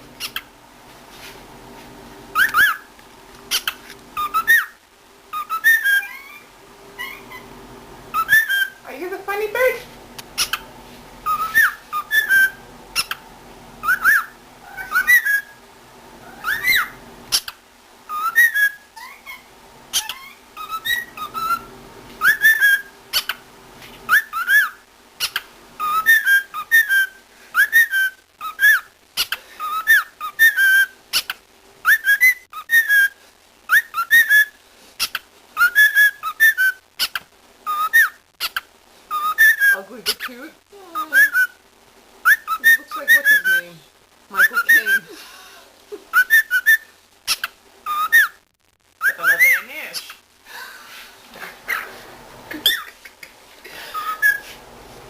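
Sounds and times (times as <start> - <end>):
cockatiel whistling and chirping: 0.2 - 0.5, 2.3 - 2.9, 3.5 - 7.5, 8.1 - 8.8, 10.4 - 10.6, 11.2 - 13.2, 13.8 - 15.6, 16.3 - 23.4, 24.1 - 40.2, 41.0 - 41.6, 42.2 - 43.7, 44.4 - 45.1, 46.1 - 48.4, 49.0 - 49.7, 52.6 - 53.0, 53.9 - 54.6.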